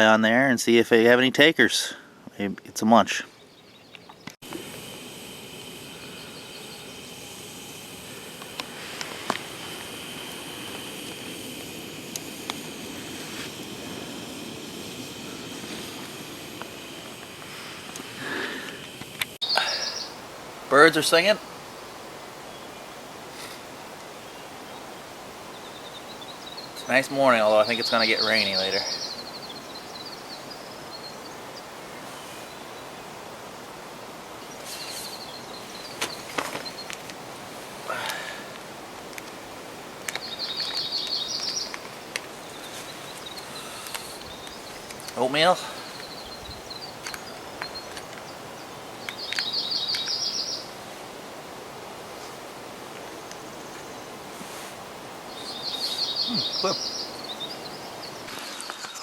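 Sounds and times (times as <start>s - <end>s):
steady background hiss: 0.0s - 59.0s
bird chirps: 3.2s - 4.4s, 19.4s - 20.2s, 25.5s - 33.0s, 34.4s - 37.0s, 40.1s - 50.7s, 55.3s - 59.0s
faint high bird trill: 48.6s - 50.7s, 55.3s - 59.0s
faint high calls: 55.4s - 57.7s.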